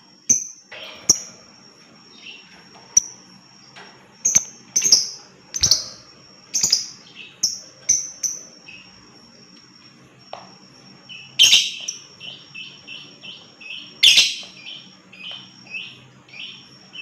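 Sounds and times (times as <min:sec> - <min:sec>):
bird chirping shrilly: 0:04.3 - 0:08.9.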